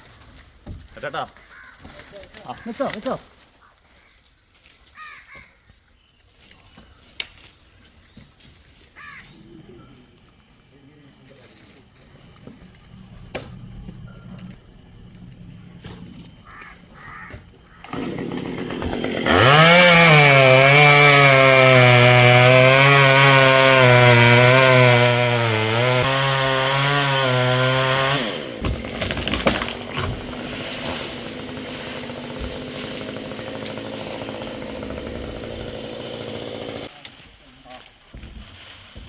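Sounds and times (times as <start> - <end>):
chainsaw revving and cutting: 17.9 - 36.9.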